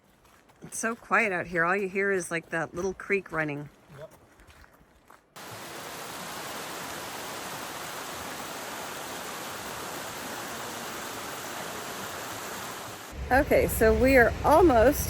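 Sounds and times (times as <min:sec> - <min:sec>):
waterfall rushing: 0:05.4 - 0:13.2.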